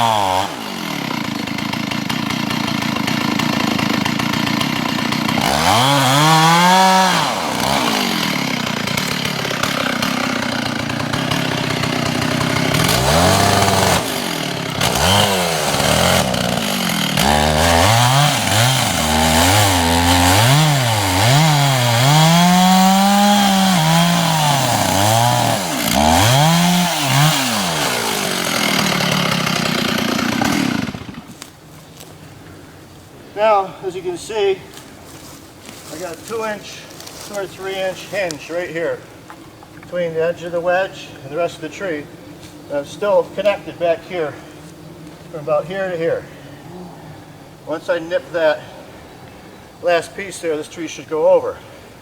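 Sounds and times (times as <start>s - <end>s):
chainsaw cutting into wood: 0.0s - 31.5s.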